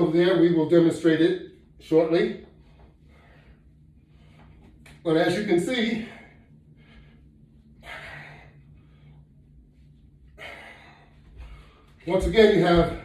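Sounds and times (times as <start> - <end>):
man breathing hard: 2.6 - 4.8, 6.0 - 12.0.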